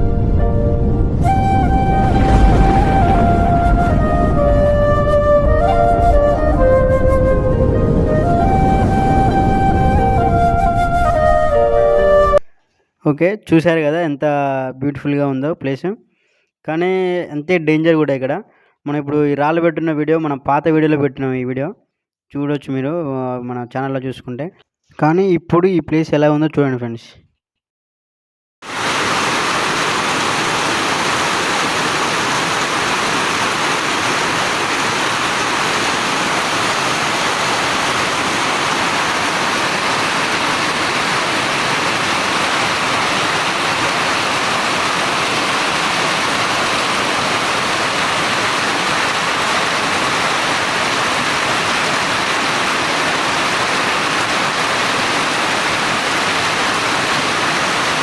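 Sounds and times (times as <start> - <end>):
water rushing: 0.0 - 12.5, 28.6 - 58.0.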